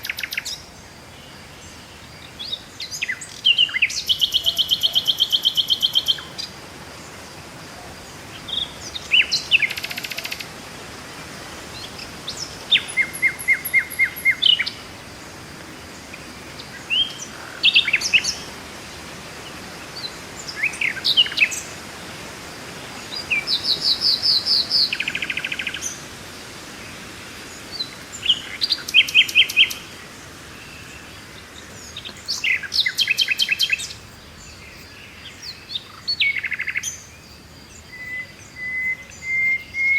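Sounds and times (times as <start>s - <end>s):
faint steady hiss: 0.0s - 39.9s
songbirds chirping and trilling: 0.0s - 39.9s.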